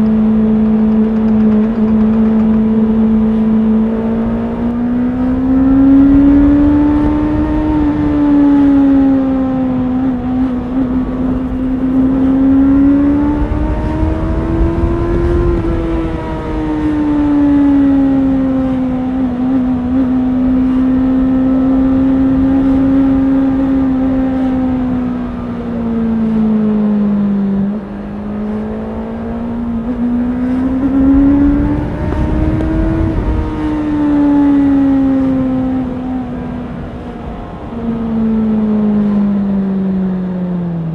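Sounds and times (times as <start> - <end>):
low rumble: 0.0 - 17.1, 29.0 - 36.3
motorcycle engine revving under load: 0.0 - 40.9.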